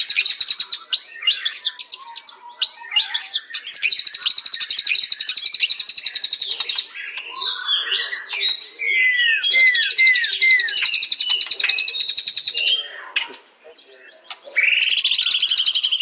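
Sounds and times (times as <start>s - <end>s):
bird singing fast trills and whistles: 0.0s - 16.0s.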